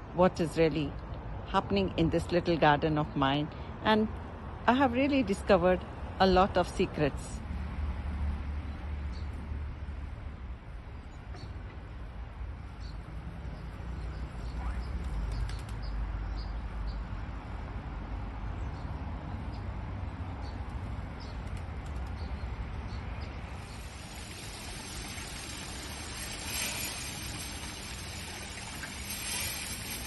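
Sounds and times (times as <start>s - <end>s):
steady hiss: 23.5s - 30.0s.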